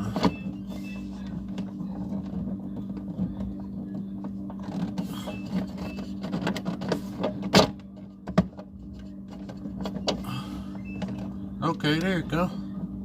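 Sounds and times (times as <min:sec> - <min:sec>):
steady low hum: 0:00.0 - 0:13.0
plastic clicking and knocking: 0:01.3 - 0:10.2.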